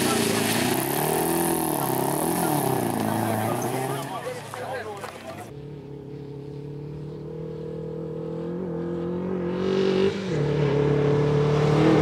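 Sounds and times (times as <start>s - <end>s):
car engine accelerating hard: 0.0s - 12.0s
tyre and road noise: 0.0s - 12.0s.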